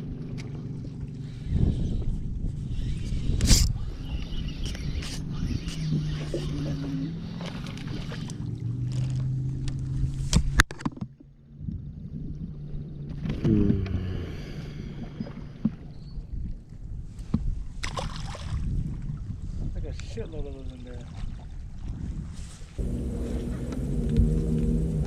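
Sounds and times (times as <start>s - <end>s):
boat motor humming: 0.0s - 10.6s, 12.5s - 16.1s, 22.8s - 25.0s
water and wind noise: 0.0s - 25.0s.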